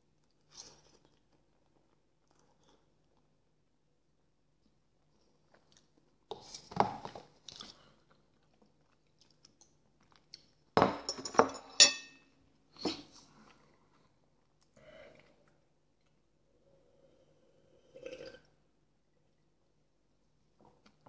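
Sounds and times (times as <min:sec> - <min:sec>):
fork clinking on plate: 0:11.1 - 0:12.2.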